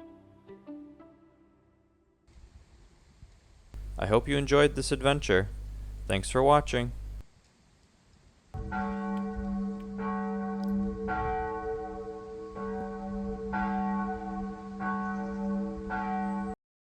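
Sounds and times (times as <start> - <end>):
church bell ringing: 3.8 - 7.2, 8.6 - 16.6.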